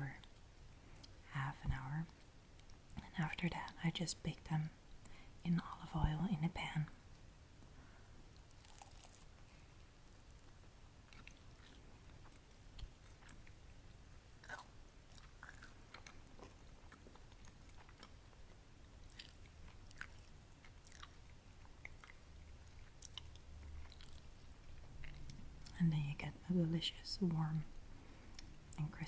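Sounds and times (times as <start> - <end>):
chewing crispy food: 8.3 - 9.5, 10.1 - 25.8.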